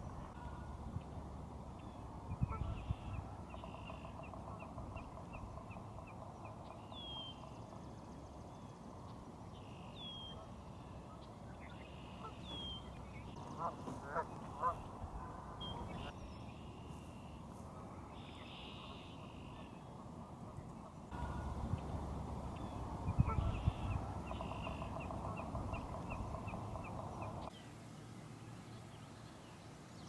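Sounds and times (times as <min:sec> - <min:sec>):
geese honking: 0:12.2 - 0:16.2, 0:21.2 - 0:27.5.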